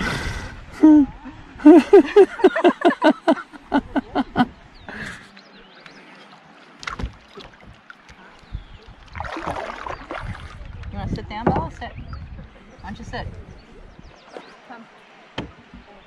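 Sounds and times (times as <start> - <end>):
rhythmic laughter: 1.6 - 4.5
water swishing around paddle: 2.4 - 16.0
sharp knocks on boat: 6.8 - 7.9, 11.3 - 12.5, 15.3 - 16.0.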